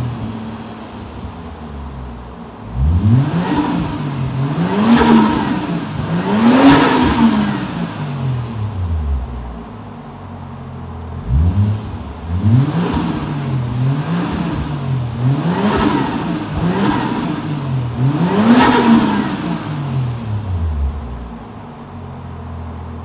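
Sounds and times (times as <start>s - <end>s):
engine revving in blips: 2.7s - 9.6s, 11.2s - 21.4s.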